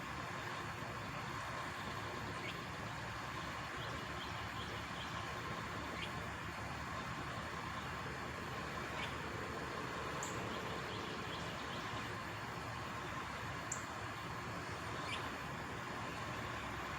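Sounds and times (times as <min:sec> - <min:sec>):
faint bird chirps: 0:01.6 - 0:06.2, 0:08.8 - 0:09.3, 0:10.1 - 0:12.2, 0:14.8 - 0:15.5.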